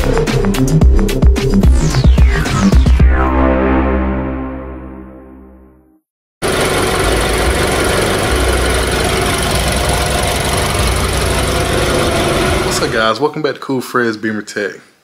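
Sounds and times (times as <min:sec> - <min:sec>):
car engine idling: 0:06.4 - 0:13.1.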